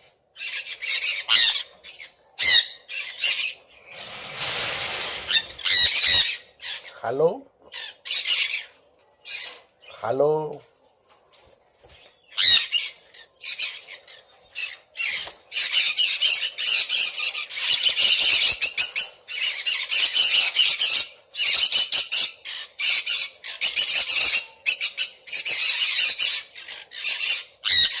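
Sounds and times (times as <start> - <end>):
parrots screeching: 0.4 - 7.0, 7.7 - 9.6, 12.4 - 28.0.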